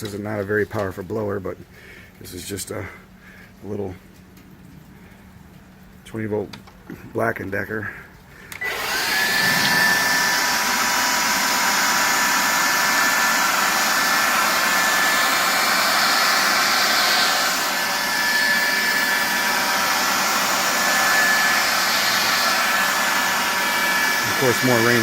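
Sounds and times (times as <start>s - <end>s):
leaf blower running: 8.5s - 25.0s.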